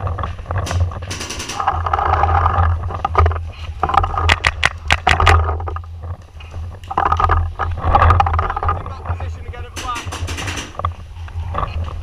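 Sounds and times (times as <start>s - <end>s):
low rumble and rustle: 0.0s - 12.0s
paintball marker firing: 9.8s - 10.8s.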